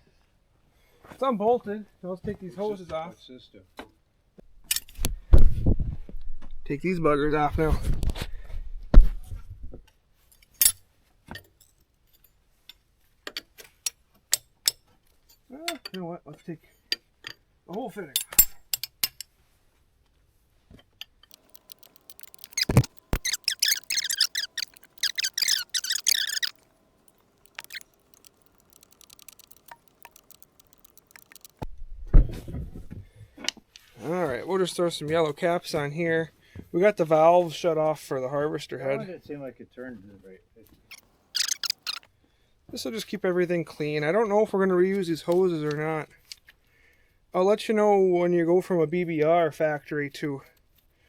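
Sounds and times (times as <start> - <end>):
metallic clicks of hand tools: 21.3 - 31.6.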